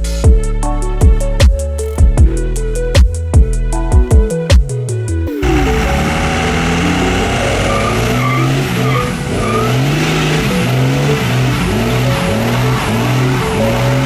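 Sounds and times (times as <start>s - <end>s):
hiss of spinning tires: 5.3s - 14.0s
tire squeals: 5.3s - 14.0s
truck engine revving: 5.3s - 14.0s.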